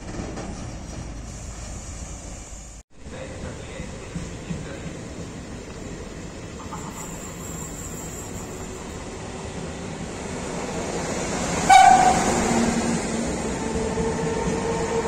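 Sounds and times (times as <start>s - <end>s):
train rolling with rumble: 0.0s - 15.0s
train horn blast: 11.7s - 12.6s.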